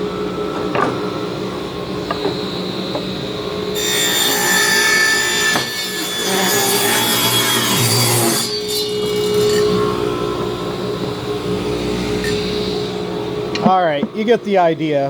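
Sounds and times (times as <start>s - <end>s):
table saw ripping board: 3.8s - 9.6s.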